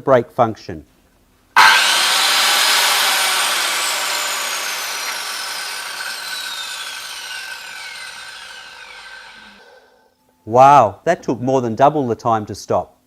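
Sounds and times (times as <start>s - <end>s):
circular saw whine coasting down: 1.6s - 9.8s.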